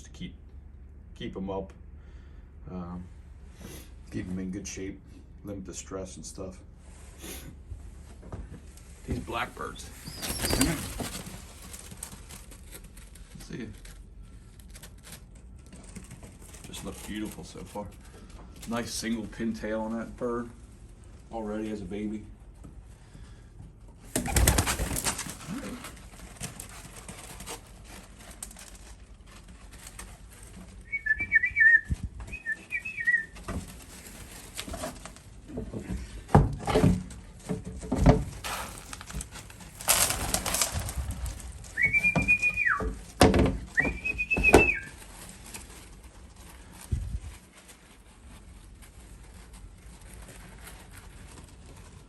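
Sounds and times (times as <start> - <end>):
rustling: 6.6 - 52.0
pigeons whistling: 9.9 - 11.3, 24.2 - 25.8, 30.8 - 33.4, 41.6 - 43.0, 43.7 - 45.0.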